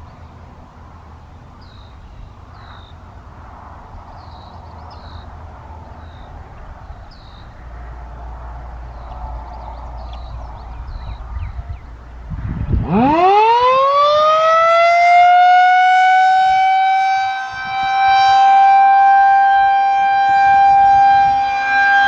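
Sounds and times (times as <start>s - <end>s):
birds chirping: 0.0s - 3.3s, 3.9s - 12.3s
low rumble: 3.4s - 13.1s.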